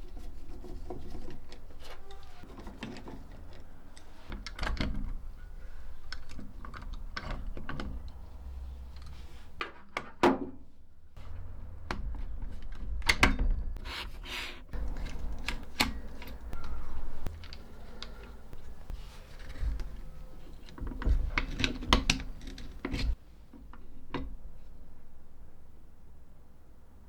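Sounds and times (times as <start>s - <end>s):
short scraping noises: 13.8s - 15.3s
clicks and knocks of metal parts: 14.7s - 24.4s.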